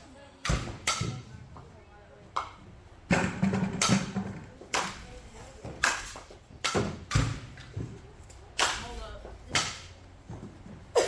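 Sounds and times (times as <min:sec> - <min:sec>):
softball bat hits: 0:05.8 - 0:07.7.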